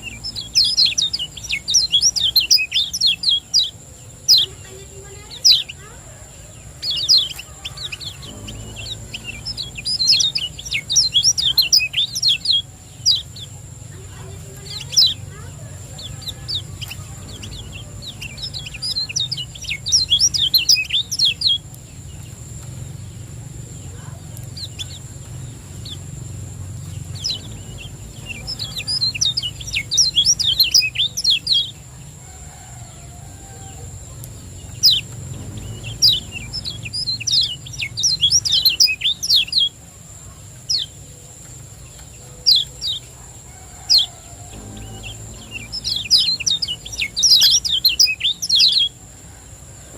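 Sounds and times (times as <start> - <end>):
bird singing rapid high chirps: 0.0 - 32.0, 33.6 - 49.1
steady low hum: 0.0 - 49.9
thin high whine: 7.2 - 21.9, 44.2 - 47.9.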